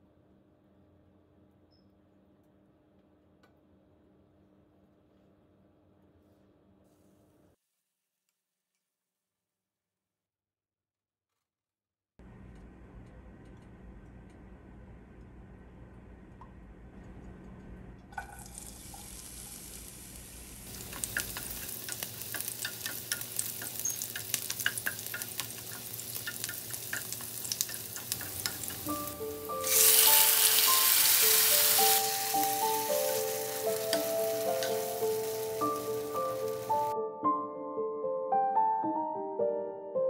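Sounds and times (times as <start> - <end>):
food sizzling in hot oil: 18.2 - 36.9
light melodic music: 28.1 - 40.0.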